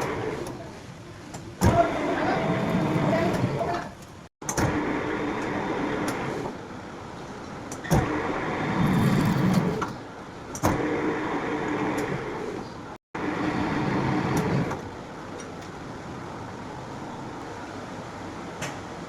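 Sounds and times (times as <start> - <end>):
metal lathe running: 1.8 - 3.8, 8.1 - 9.9.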